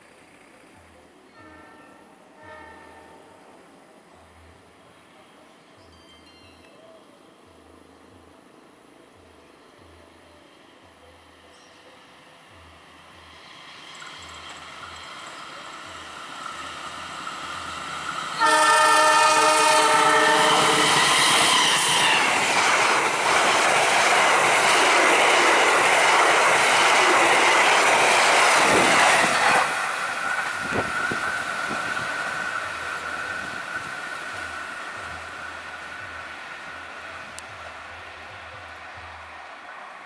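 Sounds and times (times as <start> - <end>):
train horn: 1.3 - 3.4, 18.4 - 22.3
train wheels on rails: 12.5 - 40.0.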